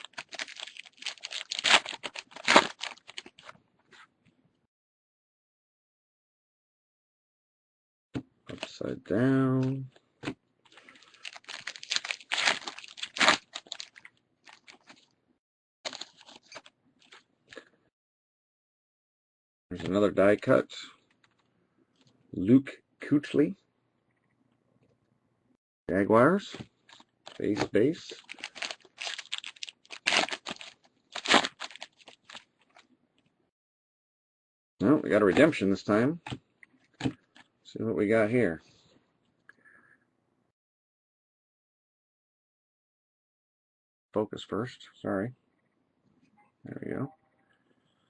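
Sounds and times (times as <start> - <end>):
cards rustling: 0.0 - 3.5, 10.7 - 15.1, 15.9 - 17.2, 26.5 - 32.8
foil wrapper crinkling: 0.0 - 3.5, 10.8 - 15.1, 15.9 - 17.2, 26.9 - 32.9.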